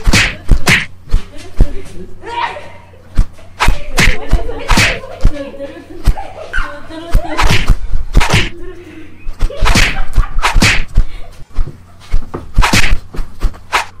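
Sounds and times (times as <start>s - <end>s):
sharp slaps and knocks: 0.0s - 1.3s, 3.2s - 5.0s, 7.4s - 8.5s, 9.4s - 11.0s, 12.2s - 14.0s.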